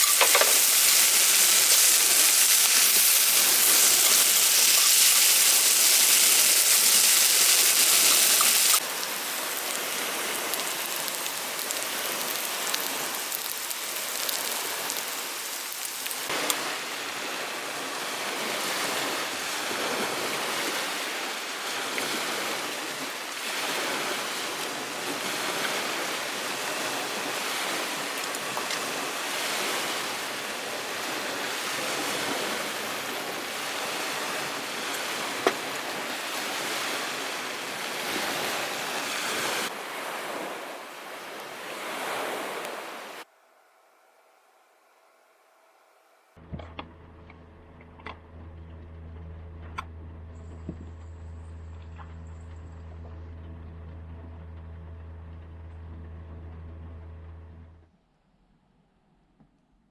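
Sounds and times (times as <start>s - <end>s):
rain falling: 0.0s - 20.1s, 46.9s - 57.8s.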